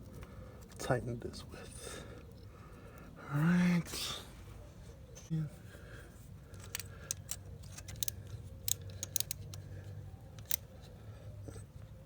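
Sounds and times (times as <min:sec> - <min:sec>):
hand tool clicking on metal: 0:06.6 - 0:09.6, 0:10.4 - 0:10.7.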